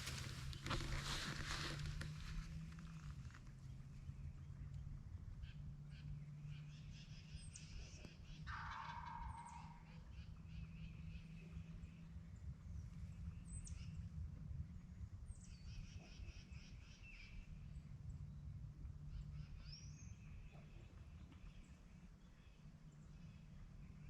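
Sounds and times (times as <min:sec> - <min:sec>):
songbirds trilling: 0:00.0 - 0:14.2
low steady rumble: 0:00.0 - 0:24.0.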